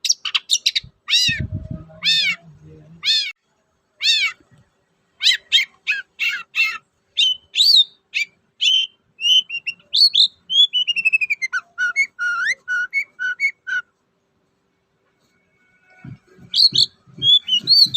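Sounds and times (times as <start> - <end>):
shrike singing chattering song: 0.0 - 3.4, 16.3 - 17.9.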